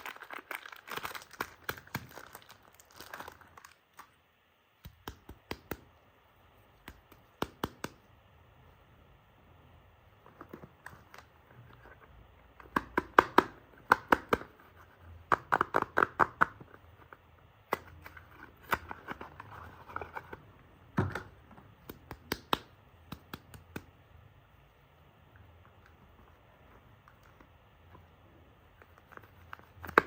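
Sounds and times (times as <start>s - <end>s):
wrapper crackling and tearing: 0.0s - 4.2s.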